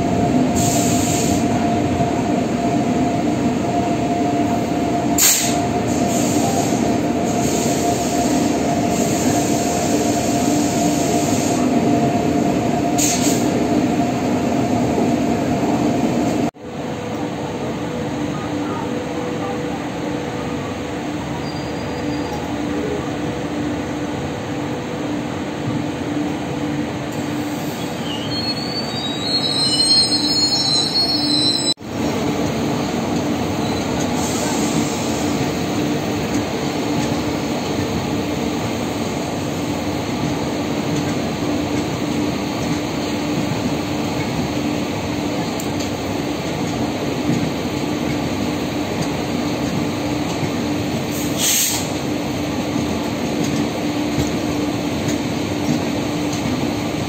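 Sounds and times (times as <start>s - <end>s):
train rumbling: 0.0s - 57.0s
high-pitched wheel squeal: 21.4s - 22.4s, 27.8s - 31.8s.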